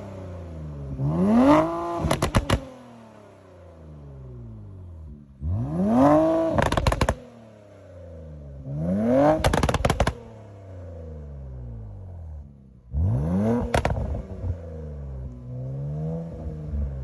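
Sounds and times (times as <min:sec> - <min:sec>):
car engine revving: 0:00.0 - 0:17.0
exhaust crackles and pops: 0:02.0 - 0:02.8, 0:06.2 - 0:07.3, 0:09.2 - 0:10.3, 0:13.5 - 0:14.6.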